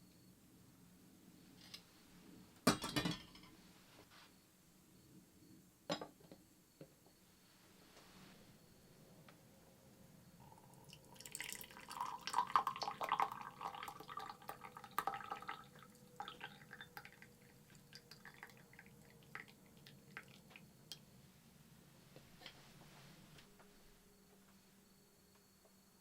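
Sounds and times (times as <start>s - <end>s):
liquid pouring into a cup: 10.4s - 20.7s.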